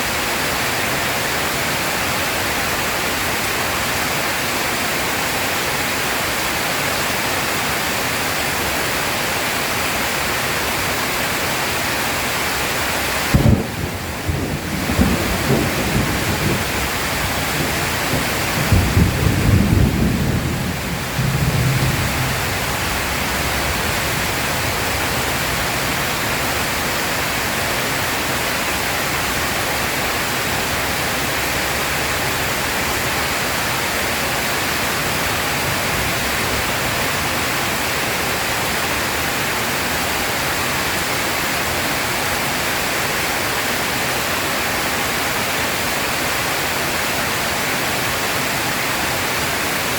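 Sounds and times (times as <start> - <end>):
heavy rain: 0.0 - 49.9
thunder rumbling: 13.3 - 26.8.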